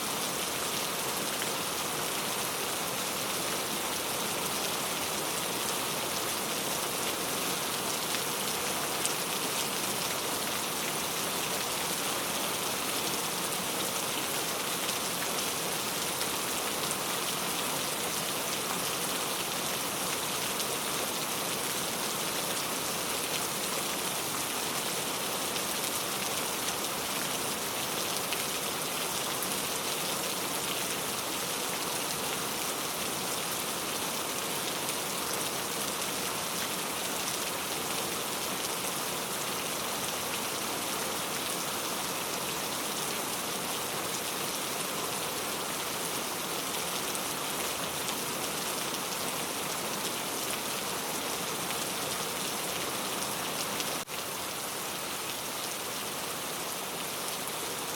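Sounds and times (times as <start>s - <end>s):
steady rain pattering: 0.0s - 57.9s.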